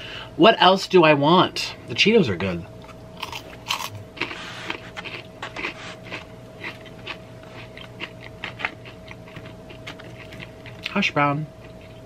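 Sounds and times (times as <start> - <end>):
crunchy snack chewing: 3.2 - 11.0.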